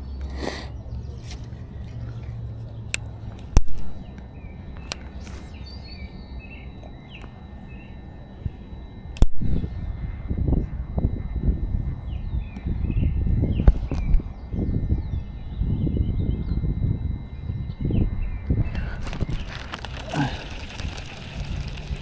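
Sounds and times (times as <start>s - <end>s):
birds chirping: 4.0s - 8.0s, 19.2s - 22.0s
low rumbling noise: 19.0s - 22.0s.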